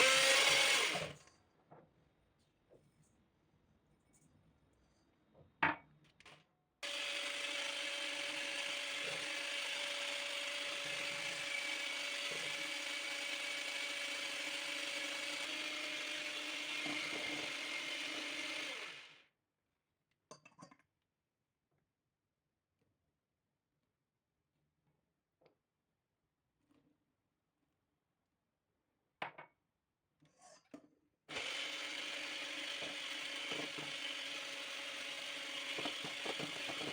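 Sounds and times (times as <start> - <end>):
kitchen appliance grinding: 0.0 - 1.2, 6.8 - 19.2, 31.3 - 36.9.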